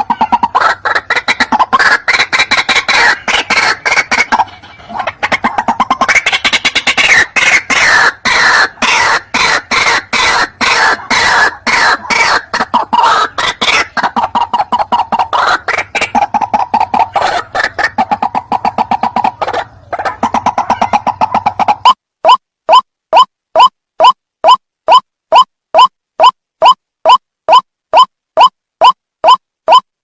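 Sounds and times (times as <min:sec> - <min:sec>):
waterhen calling: 0:00.0 - 0:22.0.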